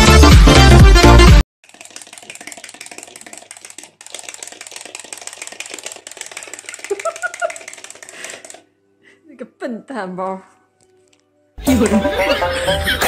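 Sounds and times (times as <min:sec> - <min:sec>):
toy rattling clatter: 0:01.6 - 0:08.6.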